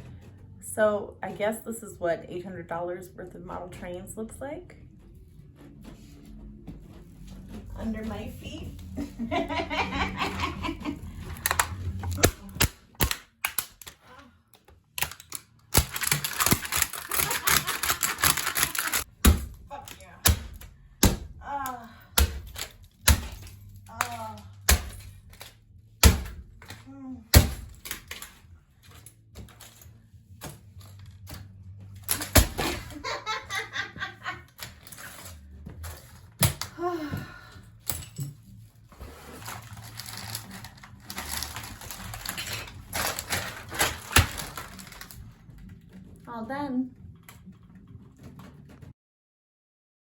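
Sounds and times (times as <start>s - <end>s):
woman laughing: 8.9s - 11.3s, 17.0s - 19.0s, 32.6s - 34.5s
plastic toy cracking underfoot: 11.3s - 19.1s, 39.6s - 45.6s
model train set cracking underfoot: 15.0s - 19.1s.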